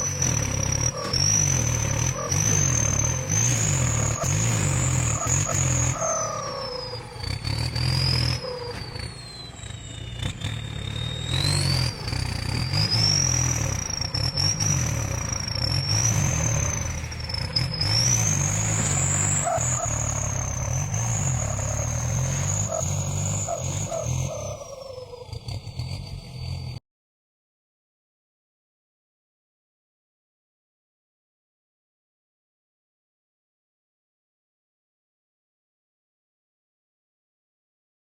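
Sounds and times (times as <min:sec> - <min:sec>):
tractor diesel engine under load: 0:00.0 - 0:26.8.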